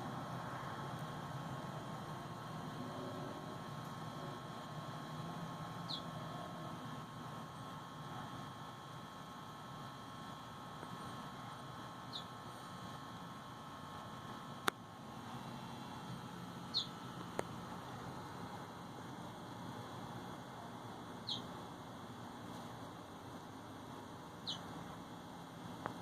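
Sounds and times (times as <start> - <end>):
faint steady hum: 0.0 - 26.0
high falling bird chirps: 16.7 - 17.0, 21.2 - 21.5, 24.4 - 24.7.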